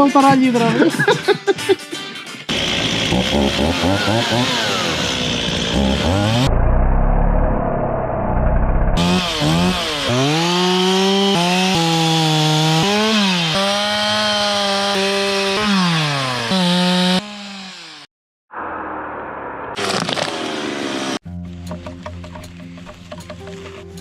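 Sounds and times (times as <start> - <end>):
chainsaw engine revving: 2.5 - 6.5, 9.0 - 18.1.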